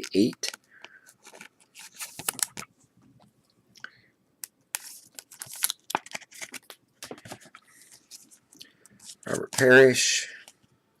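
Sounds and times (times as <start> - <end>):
foil wrapper tearing and crinkling: 4.8 - 6.7.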